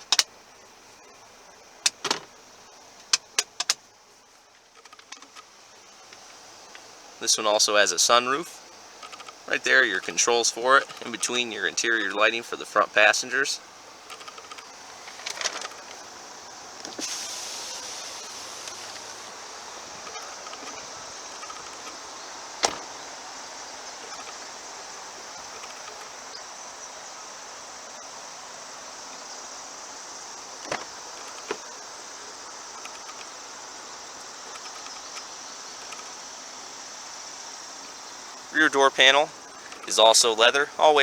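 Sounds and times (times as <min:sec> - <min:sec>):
sharp loud clicks: 0:01.8 - 0:02.3, 0:03.0 - 0:03.9, 0:20.0 - 0:23.0
high-pitched insect chirring: 0:04.6 - 0:28.3.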